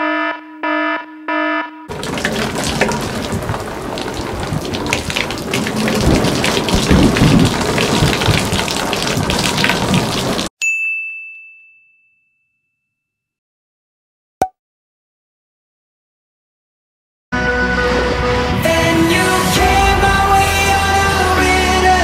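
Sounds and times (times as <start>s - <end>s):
deep rumble: 1.9s - 10.2s
heavy rain pouring: 1.9s - 10.5s, 18.6s - 22.0s.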